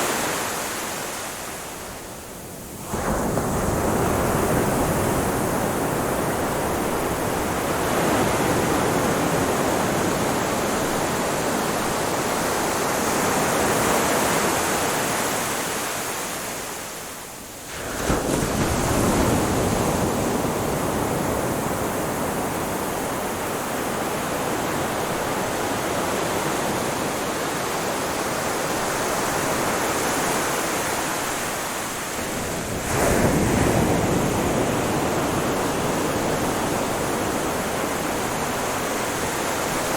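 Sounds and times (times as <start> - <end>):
ocean surf washing: 0.0 - 39.9.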